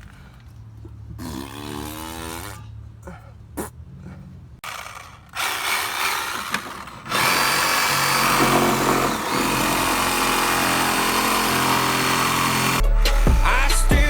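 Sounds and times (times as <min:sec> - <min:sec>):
reciprocating saw cutting sheet metal: 0:04.6 - 0:13.8.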